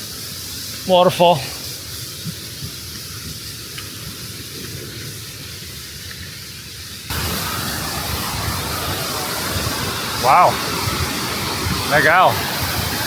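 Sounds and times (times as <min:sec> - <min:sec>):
rushing water: 0:00.0 - 0:13.0
faint ticks: 0:02.2 - 0:04.9.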